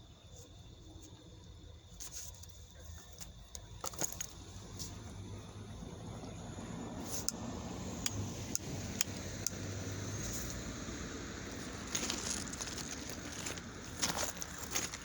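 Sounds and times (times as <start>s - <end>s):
low engine hum: 4.3s - 15.0s
rustling: 11.6s - 15.0s.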